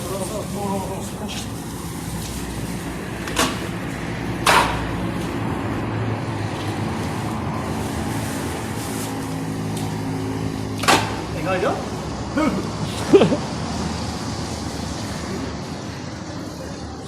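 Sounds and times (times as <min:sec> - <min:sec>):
sharp knocks: 0:04.4 - 0:05.0.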